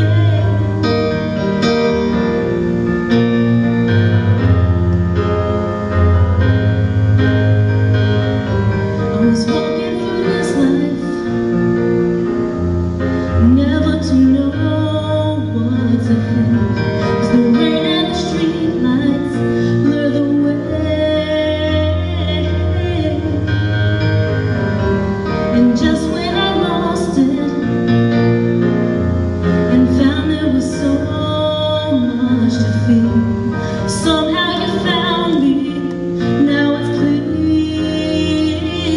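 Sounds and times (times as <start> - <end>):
woman singing: 0.0 - 1.2, 9.1 - 11.8, 13.4 - 23.9, 25.5 - 28.1, 29.6 - 38.9
keyboard chords and bass notes: 0.0 - 38.9.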